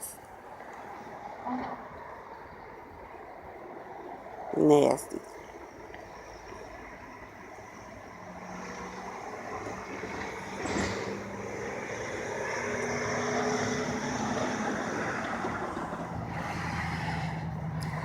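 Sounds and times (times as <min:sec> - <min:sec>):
motor vehicle running: 0:08.0 - 0:18.0.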